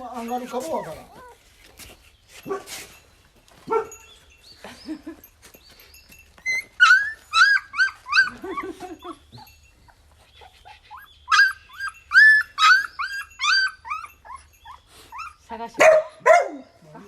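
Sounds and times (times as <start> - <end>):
puppies squealing and whimpering: 0.0 - 1.6, 6.4 - 15.7.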